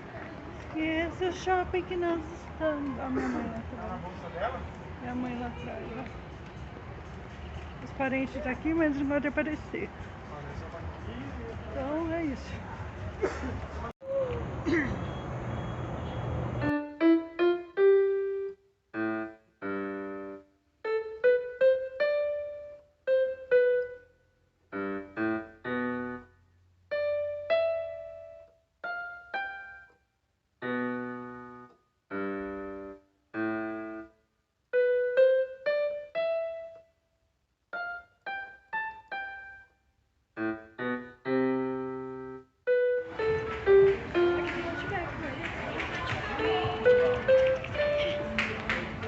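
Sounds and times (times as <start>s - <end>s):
solo piano music: 16.6s - 37.0s, 37.7s - 45.2s, 46.4s - 49.0s.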